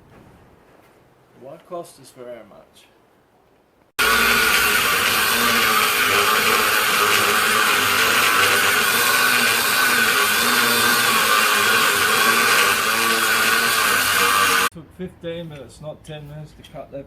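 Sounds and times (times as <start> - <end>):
angle grinder cutting steel: 4.0 - 14.7.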